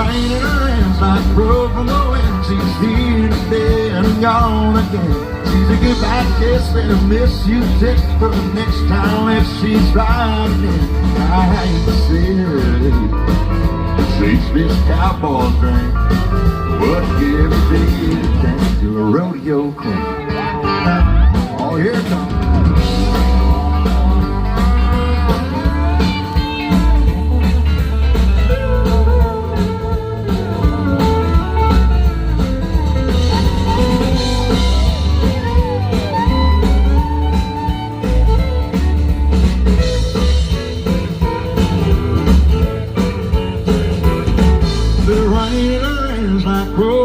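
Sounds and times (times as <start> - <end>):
bass guitar: 0.0 - 47.0
drum kit: 0.0 - 47.0
electric guitar solo: 19.6 - 47.0.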